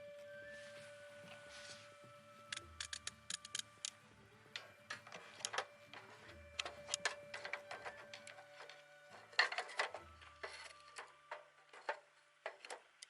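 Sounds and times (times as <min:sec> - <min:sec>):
faint background music: 0:00.0 - 0:13.0
sharp clicks and knocks: 0:04.6 - 0:13.0.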